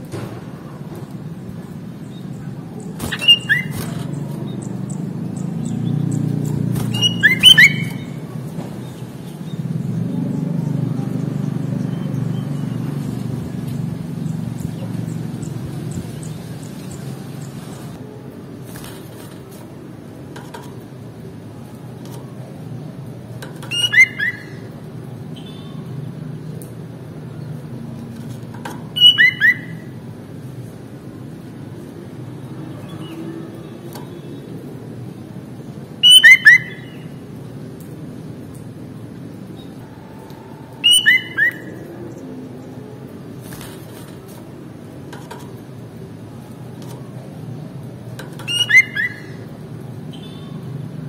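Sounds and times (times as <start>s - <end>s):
bulbul whistled calls: 3.0s - 5.0s, 6.9s - 8.2s, 23.7s - 24.6s, 29.0s - 29.9s, 36.0s - 37.0s, 40.8s - 41.9s, 48.4s - 49.4s.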